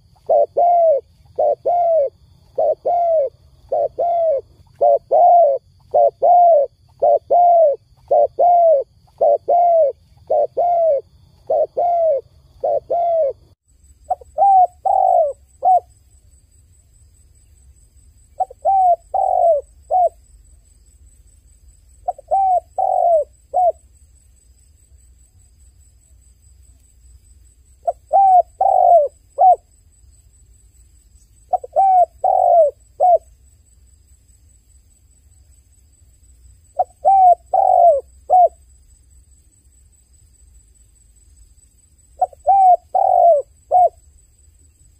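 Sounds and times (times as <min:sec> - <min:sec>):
dove cooing: 0:00.0 - 0:15.9, 0:18.4 - 0:20.2, 0:22.0 - 0:23.8, 0:27.8 - 0:29.7, 0:31.5 - 0:33.3, 0:36.8 - 0:38.6, 0:42.2 - 0:44.0.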